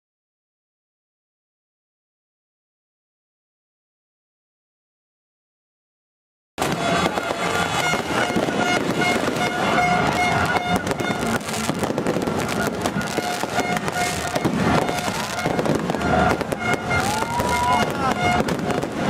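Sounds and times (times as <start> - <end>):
droning horn note: 6.6 - 19.0
fireworks crackling and popping: 6.6 - 19.0.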